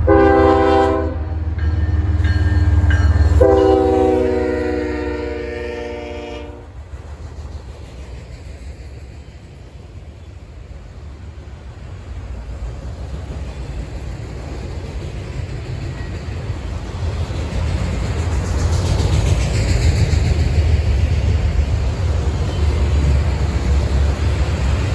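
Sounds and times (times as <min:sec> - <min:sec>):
locomotive air horn chord: 0:00.0 - 0:01.6, 0:03.4 - 0:06.7
train rumbling: 0:00.0 - 0:24.9.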